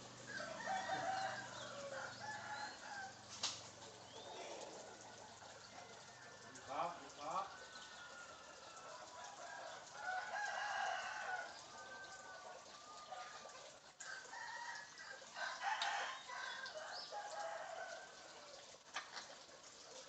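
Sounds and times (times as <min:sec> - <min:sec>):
parrot clucking and crowing: 0:00.0 - 0:03.4, 0:04.0 - 0:19.4.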